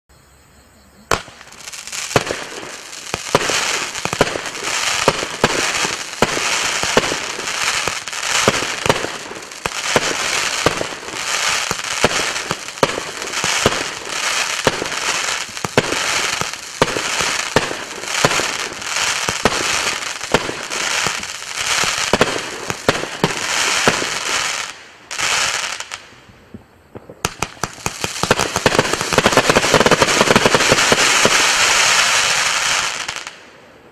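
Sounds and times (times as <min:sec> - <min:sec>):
firework launch shots: 0:01.1 - 0:24.3
firework crackling: 0:01.1 - 0:33.5.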